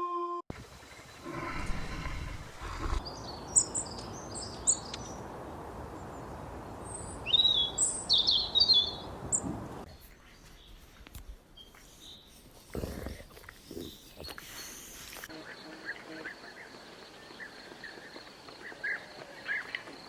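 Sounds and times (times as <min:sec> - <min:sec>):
birds chirping: 0:01.0 - 0:11.0.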